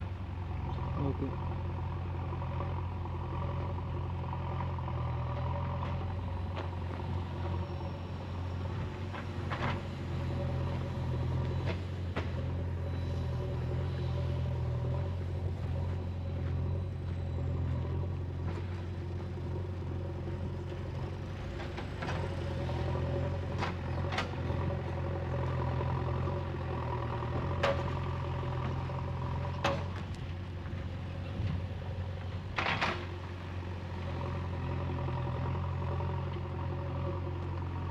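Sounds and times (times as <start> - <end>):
diesel engine idling: 0.0 - 32.5.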